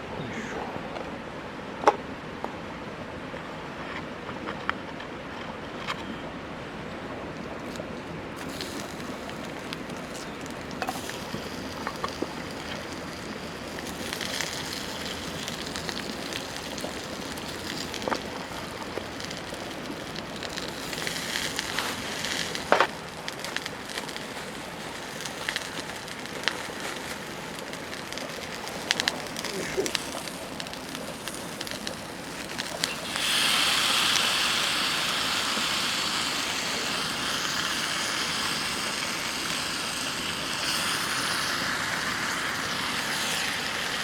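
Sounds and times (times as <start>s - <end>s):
campfire crackling and popping: 7.6s - 44.0s.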